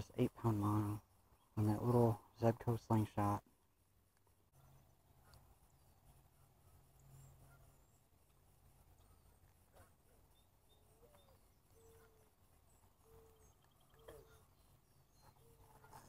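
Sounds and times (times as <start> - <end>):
faint low hum: 0.0 - 16.0
faint high bird chirps: 4.5 - 16.0.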